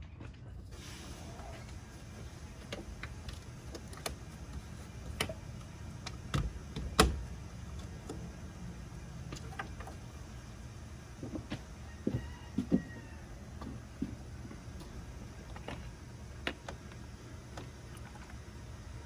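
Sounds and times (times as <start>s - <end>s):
oil pouring: 0.7s - 5.9s.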